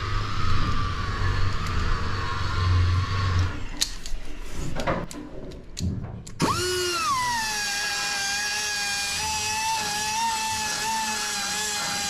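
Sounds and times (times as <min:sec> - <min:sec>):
power drill whining: 0:06.4 - 0:12.0.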